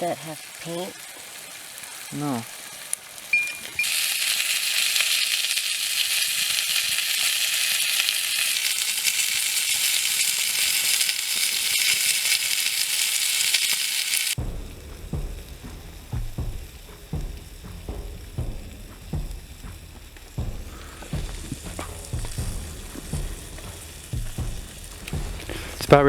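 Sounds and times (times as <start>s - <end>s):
meat sizzling on hot metal: 0.0s - 14.4s, 19.6s - 25.9s
faint low thuds: 14.4s - 26.0s.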